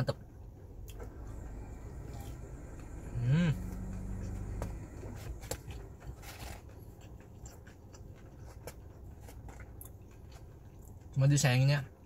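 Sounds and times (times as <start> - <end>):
person chewing food: 0.8 - 11.2
person humming: 3.0 - 4.8.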